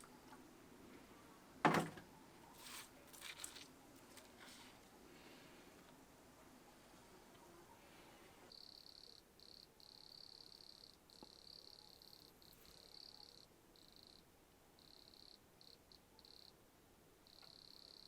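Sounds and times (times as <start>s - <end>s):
crickets chirring: 8.5s - 14.2s, 14.8s - 16.6s, 17.2s - 18.0s.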